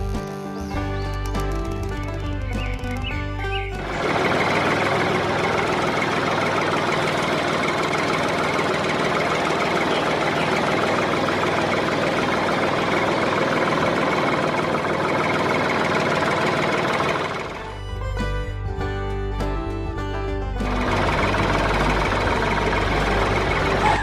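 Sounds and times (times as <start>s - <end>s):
motor-driven machine rattling: 3.8s - 17.7s, 20.6s - 24.0s.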